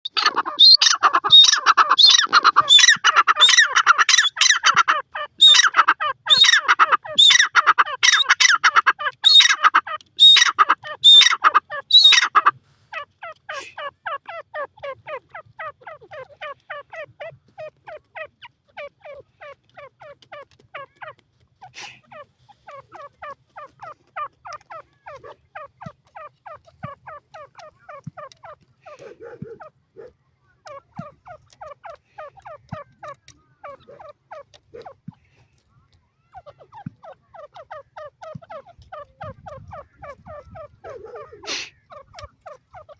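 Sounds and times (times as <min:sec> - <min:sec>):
francolin calling: 0:00.0 - 0:12.5.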